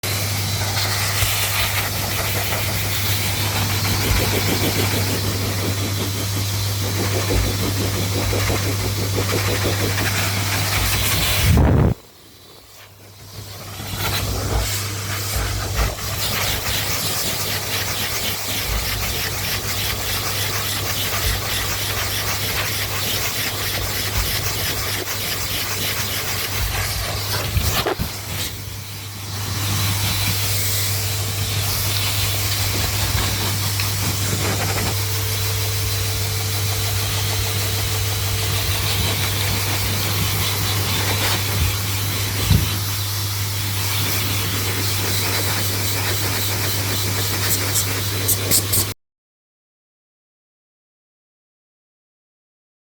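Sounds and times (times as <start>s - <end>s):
hair dryer running: 0.1s - 12.3s, 26.7s - 48.7s.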